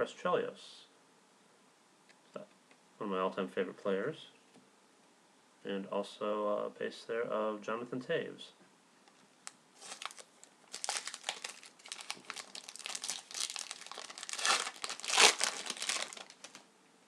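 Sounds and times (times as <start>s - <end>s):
plastic wrapper crinkling and tearing: 9.4s - 16.7s.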